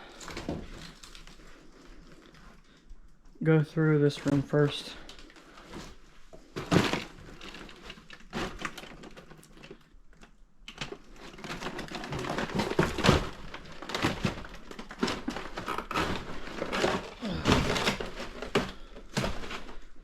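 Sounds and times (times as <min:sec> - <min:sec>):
debris shifting underfoot: 0:10.8 - 0:20.0.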